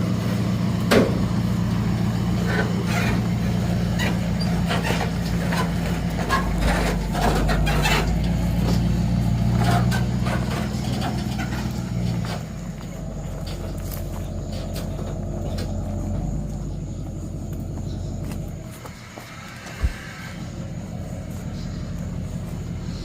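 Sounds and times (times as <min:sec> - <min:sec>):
truck engine running: 0:00.0 - 0:23.0
metal clanks and knocks: 0:00.8 - 0:01.6, 0:02.4 - 0:16.3.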